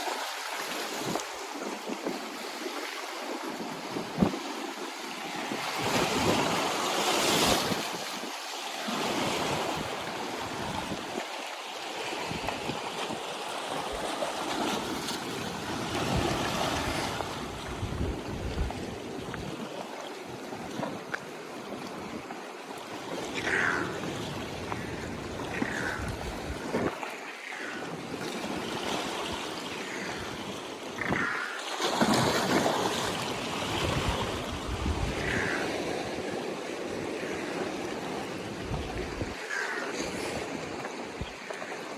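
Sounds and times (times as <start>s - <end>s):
ocean waves washing ashore: 0.0s - 41.9s
wind on microphone: 14.0s - 19.7s, 23.6s - 27.1s, 32.4s - 41.9s.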